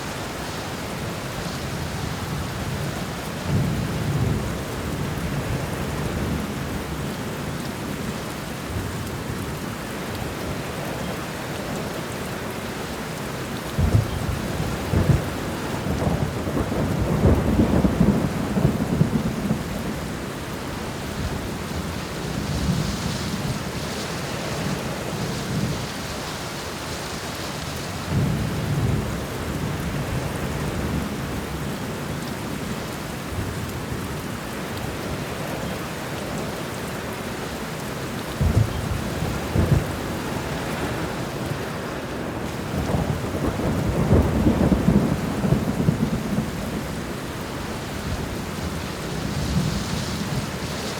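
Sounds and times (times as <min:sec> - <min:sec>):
heavy rain: 0:00.0 - 0:50.9
rolling thunder: 0:13.8 - 0:26.0, 0:28.0 - 0:31.6, 0:38.3 - 0:41.5, 0:42.4 - 0:50.9.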